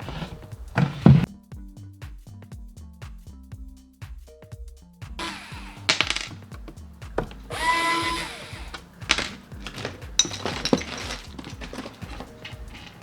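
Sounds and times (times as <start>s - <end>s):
hands and tools clattering: 0.0s - 1.3s, 5.2s - 13.0s
music with bass beat: 0.0s - 7.8s.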